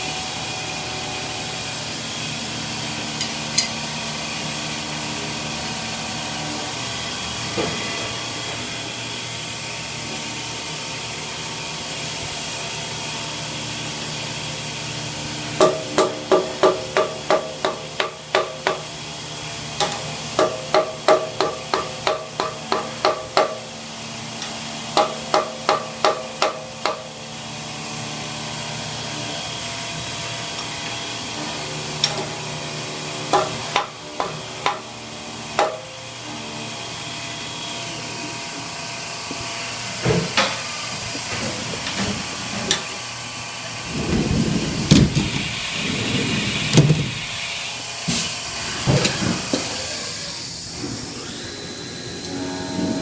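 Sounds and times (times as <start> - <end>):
machine hum: 0.0 - 53.0
hammer tapping on metal: 15.6 - 18.9, 19.8 - 23.6, 25.0 - 27.1, 33.3 - 34.9, 35.6 - 35.9.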